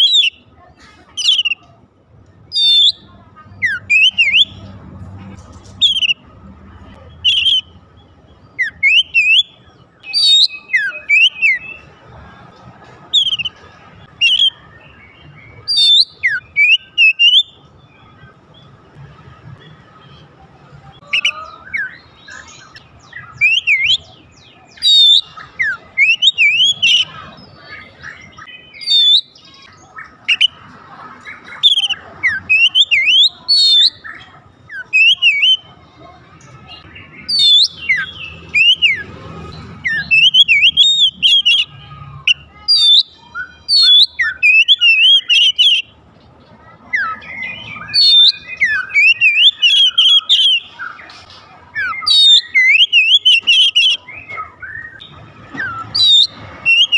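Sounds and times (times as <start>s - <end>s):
bird singing whistled phrases: 0.0s - 0.4s, 1.2s - 1.7s, 2.5s - 4.6s, 5.8s - 6.2s, 7.2s - 7.8s, 8.5s - 11.9s, 13.2s - 13.6s, 14.2s - 17.6s, 21.0s - 27.2s, 28.0s - 30.6s, 31.5s - 35.7s, 36.7s - 39.1s, 39.8s - 41.7s, 42.3s - 45.9s, 46.9s - 51.1s, 51.8s - 56.9s.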